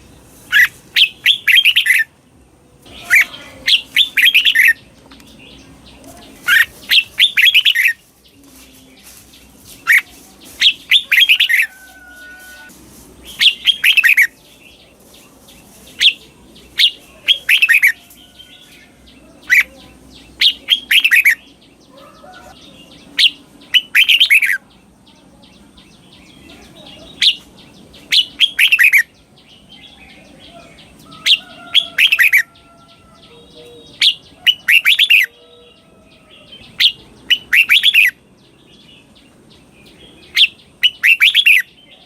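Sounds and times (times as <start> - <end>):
bird singing whistled phrases: 36.8 - 38.2, 40.4 - 41.8.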